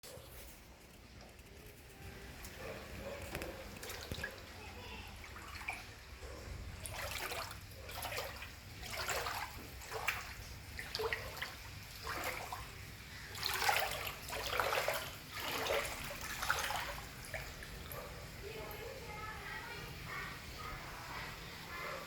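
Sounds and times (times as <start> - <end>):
floodwater sloshing and splashing: 2.1 - 18.9.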